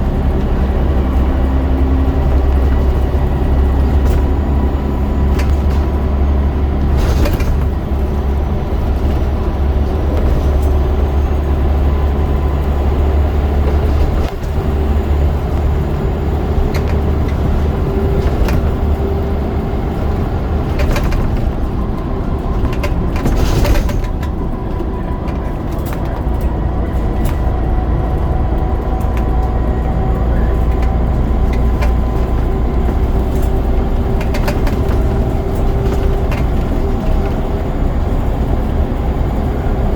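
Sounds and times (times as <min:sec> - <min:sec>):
diesel bus engine under load: 0:00.0 - 0:39.9
gearbox whine: 0:00.0 - 0:39.9
short clatter: 0:02.3 - 0:27.5.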